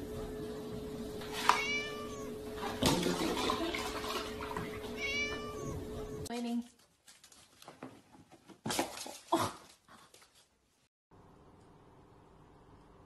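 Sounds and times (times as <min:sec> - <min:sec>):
steady low hum: 0:00.0 - 0:06.3
kitten meowing: 0:01.4 - 0:02.3, 0:04.9 - 0:06.2
milk pouring into plastic tub: 0:02.6 - 0:04.8.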